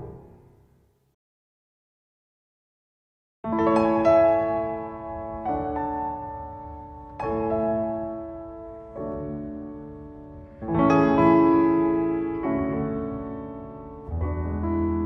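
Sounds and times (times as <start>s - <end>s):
piano playing slow chords: 3.5s - 15.0s.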